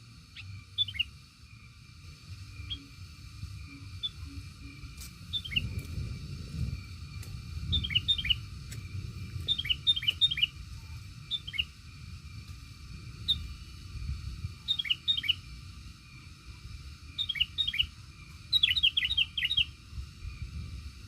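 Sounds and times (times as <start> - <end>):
faint steady high hum: 0.0 - 21.0
small bird chirping: 0.3 - 1.7, 2.4 - 12.0, 13.1 - 16.3, 16.9 - 20.5
low rumble: 3.4 - 14.6.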